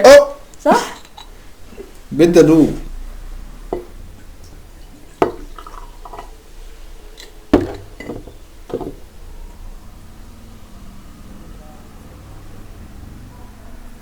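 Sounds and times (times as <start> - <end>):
glass bottles and cups clinking: 0.6 - 2.1, 3.7 - 4.0, 5.0 - 9.0.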